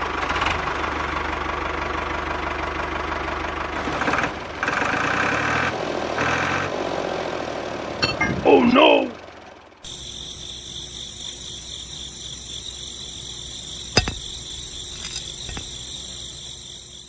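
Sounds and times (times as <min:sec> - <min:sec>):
high-pitched insect trill: 0:09.9 - 0:17.0.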